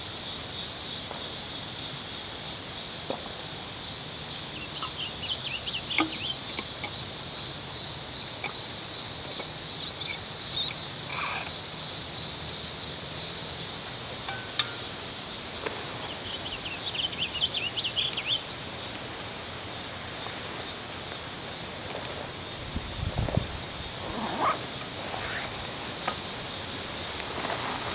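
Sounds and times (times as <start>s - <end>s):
cicadas droning: 0.0s - 27.9s
bird chirping calls: 4.5s - 7.0s, 16.0s - 18.6s.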